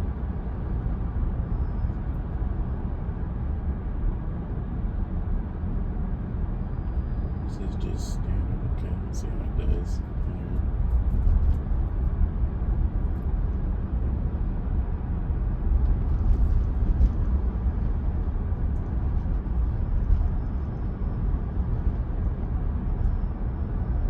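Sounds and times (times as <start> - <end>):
road and tyre rumble in car cabin: 0.0 - 24.0.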